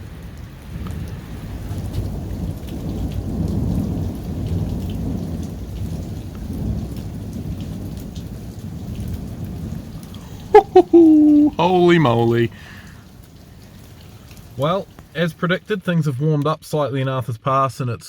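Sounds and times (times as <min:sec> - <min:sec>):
thunder rumbling: 0:01.9 - 0:11.6.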